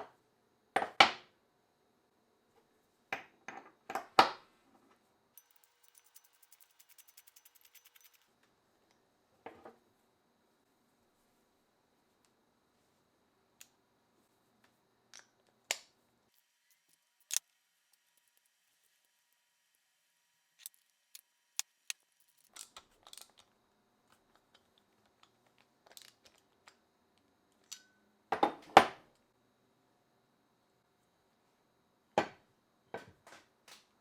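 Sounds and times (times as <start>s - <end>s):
clicks and knocks of small parts: 5.4s - 8.3s, 15.1s - 19.2s, 20.6s - 27.9s.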